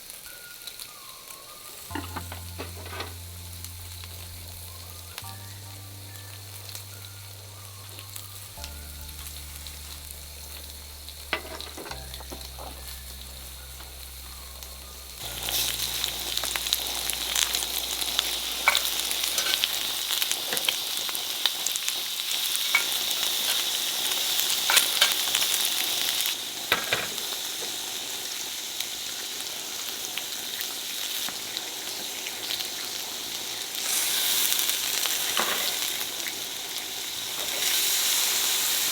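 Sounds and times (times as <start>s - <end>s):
food sizzling in a pan: 0.0s - 38.9s
low sustained notes: 1.8s - 21.2s.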